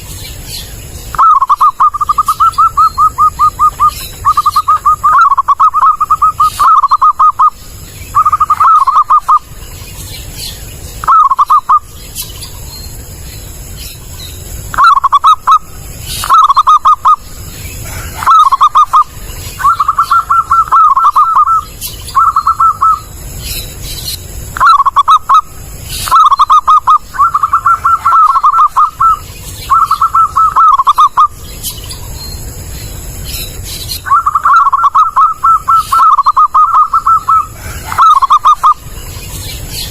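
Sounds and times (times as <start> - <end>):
dove cooing: 1.1 - 9.6, 11.0 - 11.9, 14.7 - 23.2, 24.6 - 31.4, 34.0 - 39.2.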